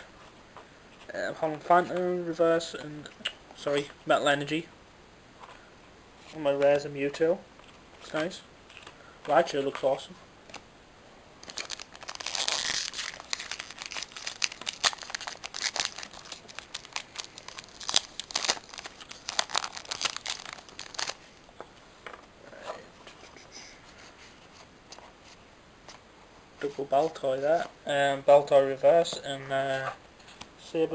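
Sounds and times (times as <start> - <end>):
cards crackling and clicking: 11.4 - 21.2
foil wrapper tearing and crinkling: 11.4 - 21.2.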